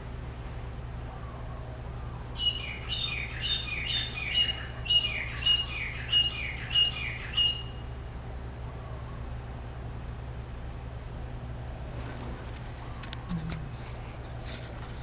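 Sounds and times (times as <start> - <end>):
bird calling repeated notes: 2.4 - 8.0.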